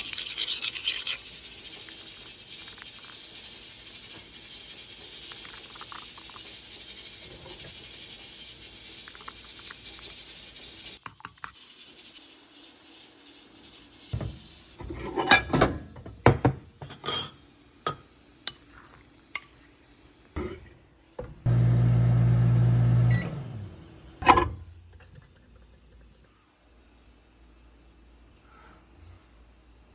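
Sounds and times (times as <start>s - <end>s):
steady hiss: 1.3s - 14.8s
dish and utensils clinking: 14.8s - 18.6s
microwave oven humming: 21.2s - 24.6s.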